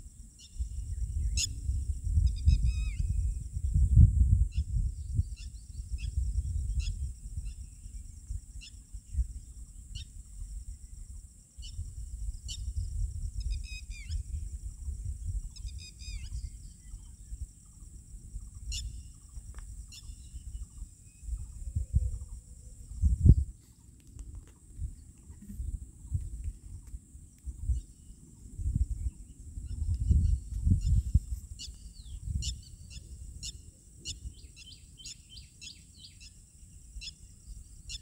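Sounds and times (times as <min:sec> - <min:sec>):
constant high hiss: 0:00.0 - 0:38.0
birds chirping and trilling: 0:15.4 - 0:23.4, 0:29.0 - 0:38.0
steady low rumble: 0:24.7 - 0:32.4.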